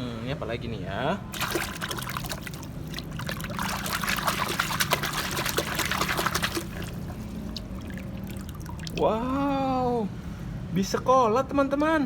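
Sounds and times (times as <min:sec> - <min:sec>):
water pouring and splashing: 0:01.3 - 0:09.1.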